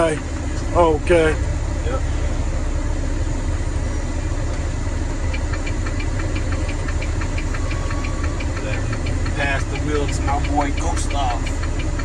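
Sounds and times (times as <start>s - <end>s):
diesel truck engine idling: 0.0s - 12.0s
light ticks: 5.3s - 12.0s.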